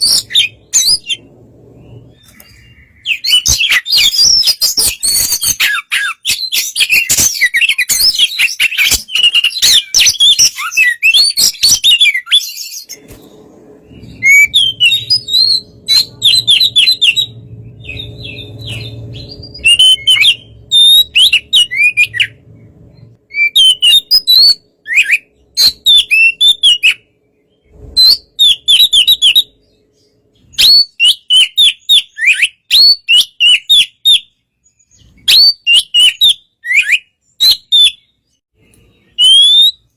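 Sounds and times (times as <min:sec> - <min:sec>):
bird singing loudly: 0:13.8 - 0:27.1.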